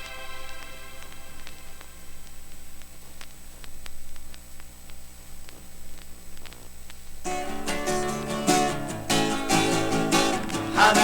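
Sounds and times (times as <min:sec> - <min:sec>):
faint hum: 0:00.0 - 0:07.5
vinyl clicks and crackle: 0:00.0 - 0:11.0
strummed acoustic guitar: 0:07.2 - 0:11.0.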